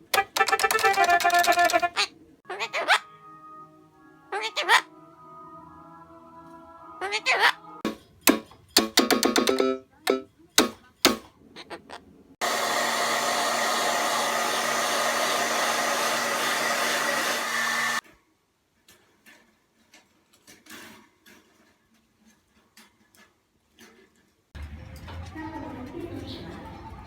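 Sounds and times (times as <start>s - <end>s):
short percussive hits: 7.8s - 11.3s
small motor blowing air: 12.4s - 18.0s.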